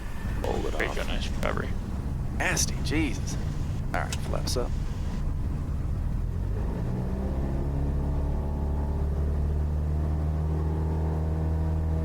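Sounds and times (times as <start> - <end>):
airplane piston engine running up: 0.2 - 5.2.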